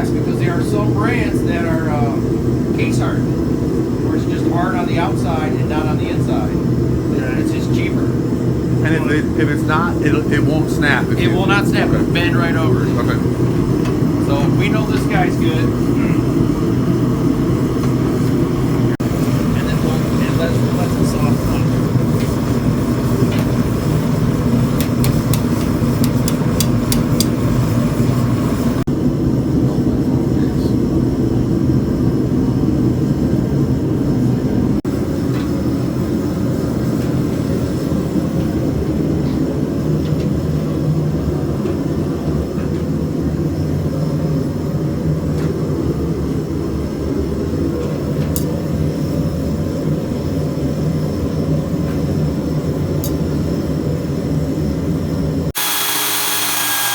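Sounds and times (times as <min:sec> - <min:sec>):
forge roaring: 0:00.0 - 0:24.8.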